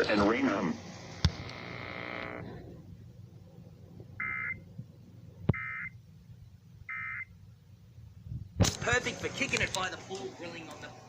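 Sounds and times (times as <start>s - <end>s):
electronic hum: 0.0s - 7.6s.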